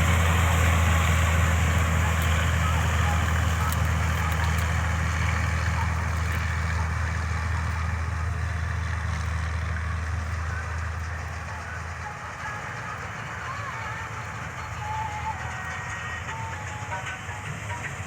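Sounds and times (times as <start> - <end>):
combine harvester engine drone: 0.0 - 18.0.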